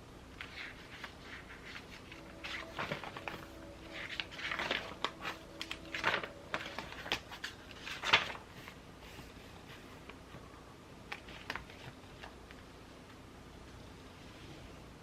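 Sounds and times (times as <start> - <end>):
paper rustling: 0.4 - 10.2, 11.1 - 12.6.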